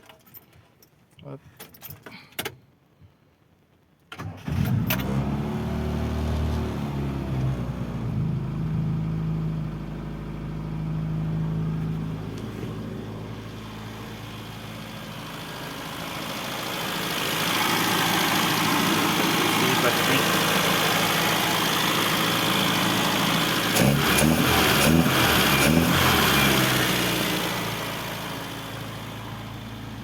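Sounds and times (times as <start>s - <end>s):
car engine idling fast: 9.7s - 30.0s
engine cranking: 16.2s - 27.2s.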